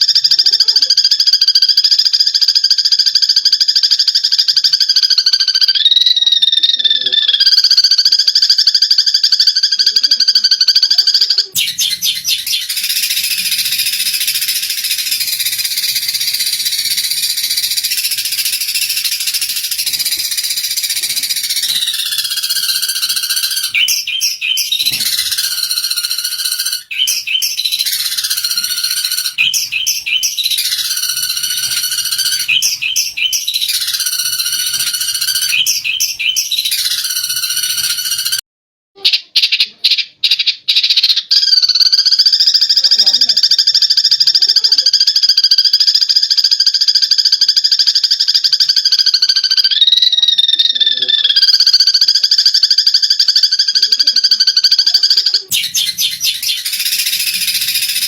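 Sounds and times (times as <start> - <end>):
sparrows chattering: 7.6 - 38.4, 51.1 - 58.0
downward-sliding chirps: 11.6 - 38.4, 55.5 - 58.0.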